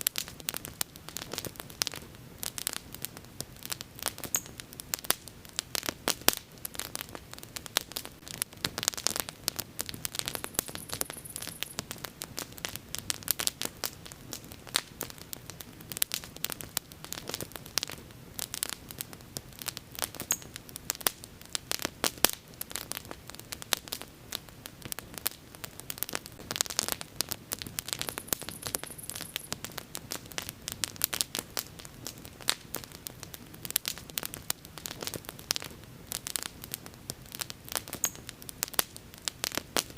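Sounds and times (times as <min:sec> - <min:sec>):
wood bonfire crackling: 0:00.0 - 0:39.9.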